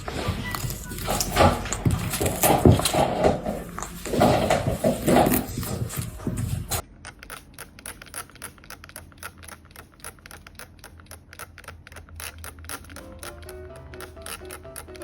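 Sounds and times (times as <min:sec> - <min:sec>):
rapid light clicking: 0:06.8 - 0:15.0
soft music: 0:13.0 - 0:15.0.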